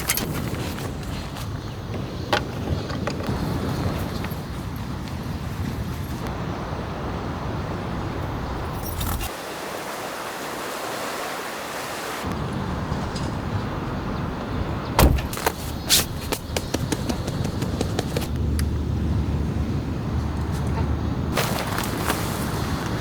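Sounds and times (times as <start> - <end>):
rain hiss: 3.2 - 12.8, 21.3 - 23.0.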